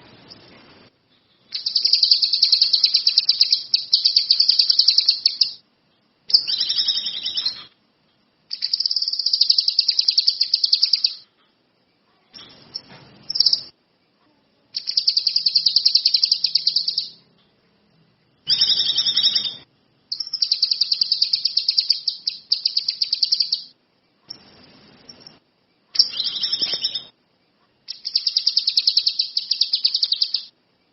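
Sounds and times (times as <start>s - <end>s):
songbird singing fast high trills: 1.5s - 5.6s, 6.3s - 7.6s, 8.5s - 11.2s, 14.8s - 17.2s, 18.5s - 23.7s, 27.9s - 30.5s.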